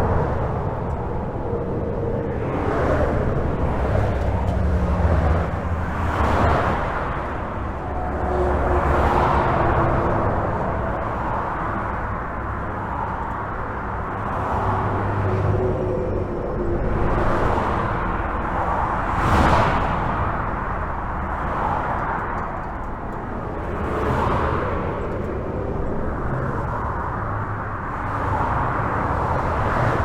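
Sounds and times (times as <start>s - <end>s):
highway traffic rumble: 0.0s - 30.0s
vehicles passing: 0.0s - 30.0s.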